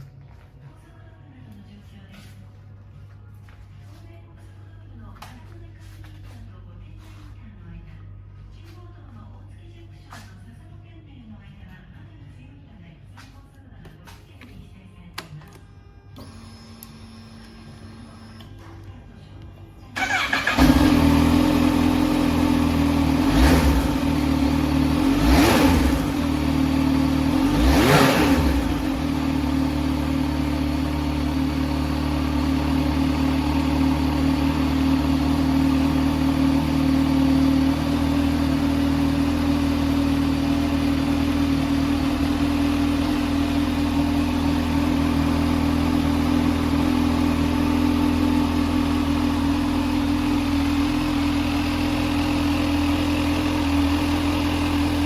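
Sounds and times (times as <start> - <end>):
motorcycle engine starting and revving: 19.9 - 55.0.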